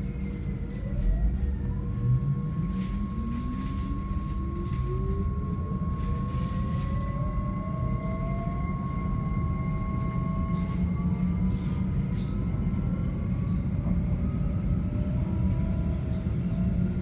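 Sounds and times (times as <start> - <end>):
low rumble of running train: 0.0 - 17.0
traction motor whine: 0.0 - 17.0
steady high tone: 0.1 - 12.8.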